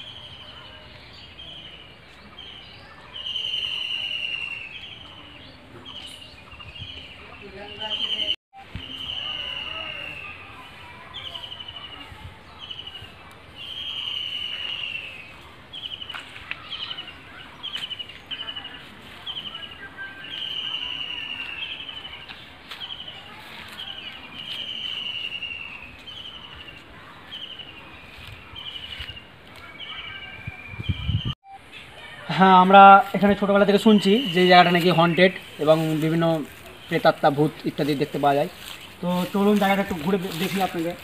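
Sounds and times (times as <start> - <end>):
outdoor background noise: 0.0 - 41.0
bird calling high notes: 2.4 - 12.0, 13.6 - 26.7.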